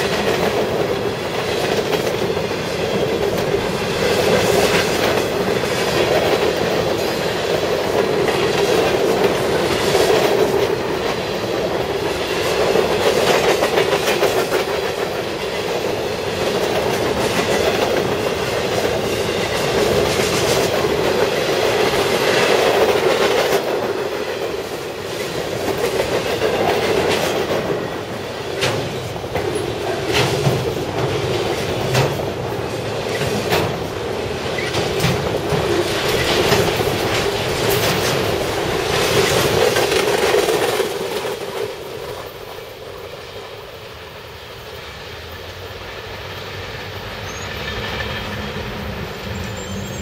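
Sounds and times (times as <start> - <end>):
wheels clacking over rail joints: 0.0 - 43.9
steel wheels rumbling on rail: 0.0 - 50.0.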